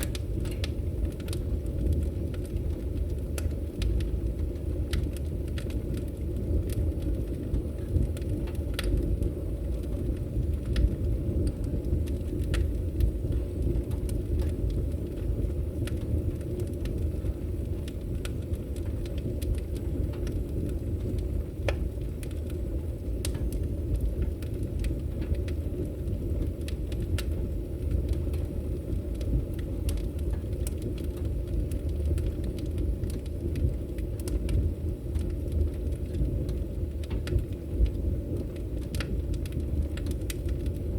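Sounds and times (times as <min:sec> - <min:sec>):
fire crackles and pops: 0:00.0 - 0:40.9
fire flames rumbling: 0:00.0 - 0:40.9.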